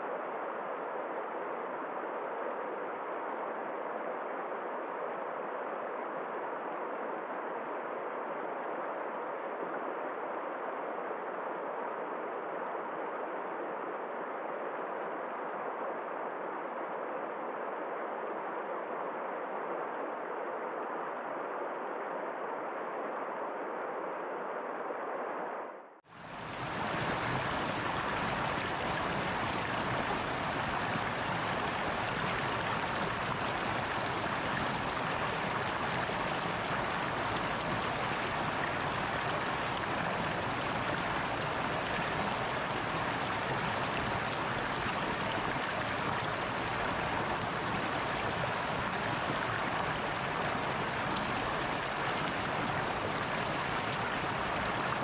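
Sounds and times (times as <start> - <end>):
muffled water sound: 26.1 - 55.0
rushing water: 26.1 - 55.0.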